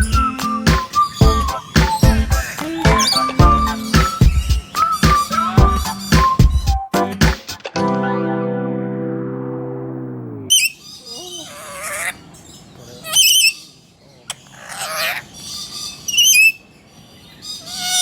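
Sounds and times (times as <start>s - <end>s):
birds squawking harshly: 0.0s - 6.4s, 10.5s - 18.0s
backing music chord: 6.9s - 10.5s.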